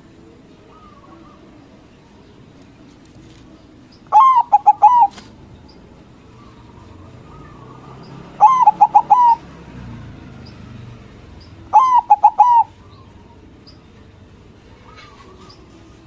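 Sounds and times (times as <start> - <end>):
dove cooing: 0.0 - 2.3, 4.1 - 5.4, 6.2 - 9.7, 11.2 - 13.7, 14.6 - 16.0.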